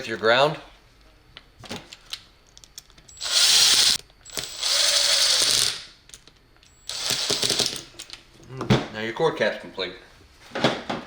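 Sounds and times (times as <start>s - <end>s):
power drill driving screws: 3.1s - 5.8s, 6.8s - 7.8s.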